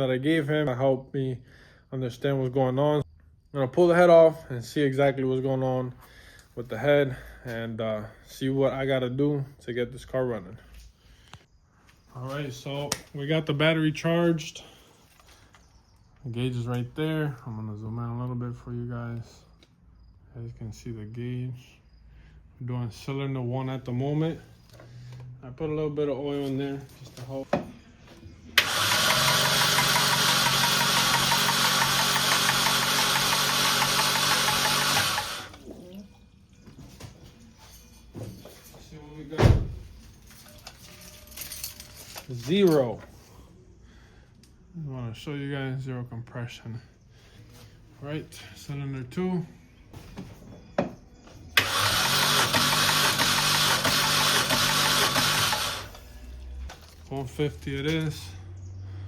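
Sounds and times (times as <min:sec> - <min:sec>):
engine cranking on starter motor: 0:28.5 - 0:35.6, 0:51.6 - 0:57.0.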